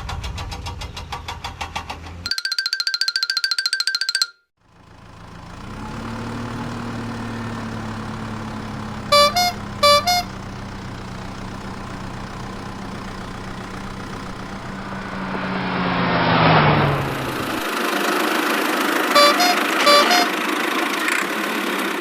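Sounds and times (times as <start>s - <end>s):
cartoon engine humming: 6.0s - 16.1s, 19.1s - 20.4s
two-note horn honks: 9.0s - 10.6s, 19.1s - 20.5s.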